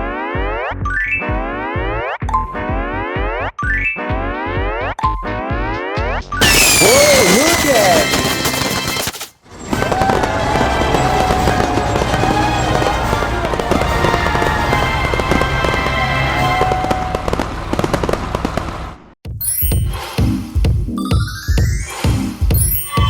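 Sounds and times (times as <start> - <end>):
sharp cracks and bangs: 6.4 - 19.2
background music: 19.3 - 23.0.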